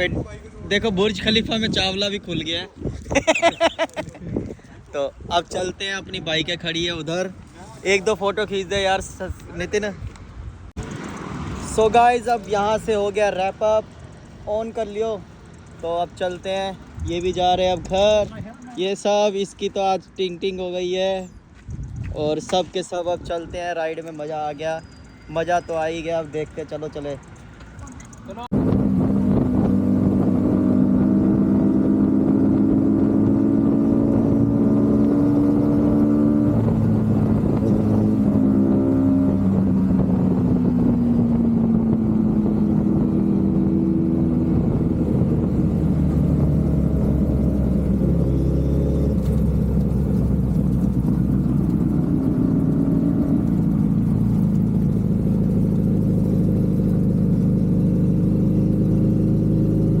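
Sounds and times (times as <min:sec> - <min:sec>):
motorcycle engine running: 0:26.4 - 1:00.0.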